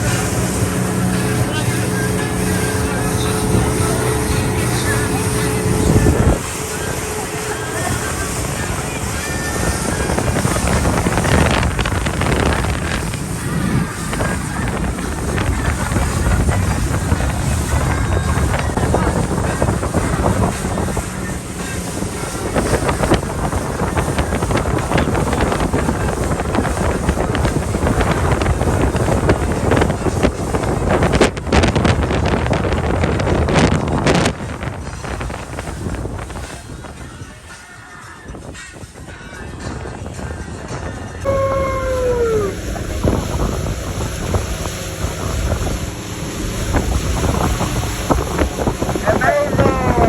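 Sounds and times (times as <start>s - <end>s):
motorboat running at speed: 0.0s - 50.0s
wind buffeting microphone: 0.0s - 50.0s
falling tone: 41.3s - 42.9s.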